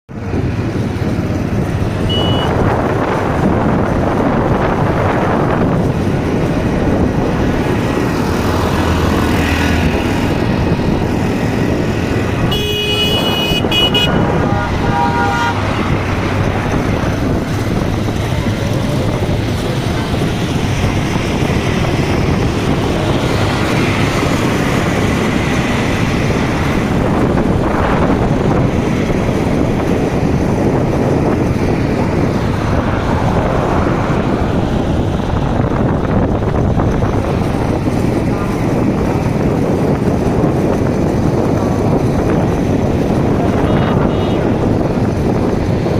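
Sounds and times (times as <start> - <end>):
road traffic noise: 0.0 - 45.9
vehicle horn honking: 2.0 - 2.6, 12.4 - 15.8, 43.6 - 44.6.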